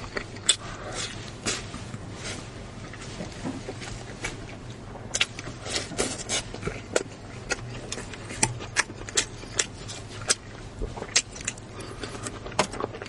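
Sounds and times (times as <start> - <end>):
chewing clicks and smacks: 0.0 - 0.7, 3.7 - 13.0.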